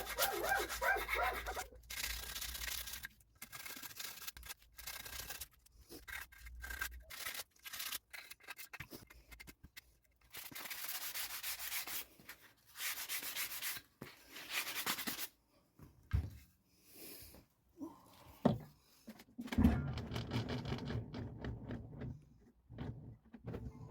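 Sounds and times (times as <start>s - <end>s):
sandpaper rubbing on wood: 0.0s - 3.0s, 10.4s - 12.1s, 12.7s - 13.8s.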